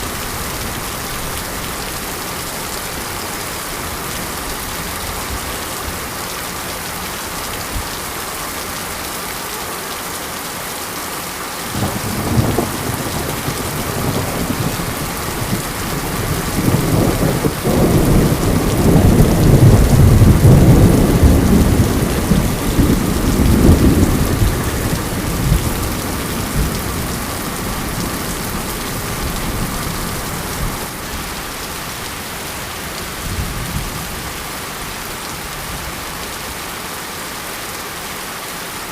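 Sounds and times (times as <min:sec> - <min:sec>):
steady rain: 0:00.0 - 0:38.9
thunder rolling: 0:11.8 - 0:30.8.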